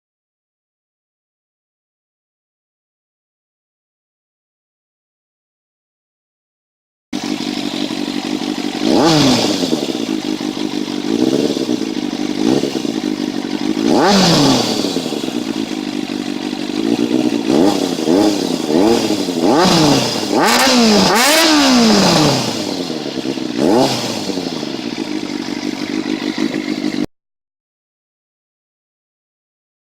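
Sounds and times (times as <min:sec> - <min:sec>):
motorcycle engine revving: 0:07.2 - 0:27.1.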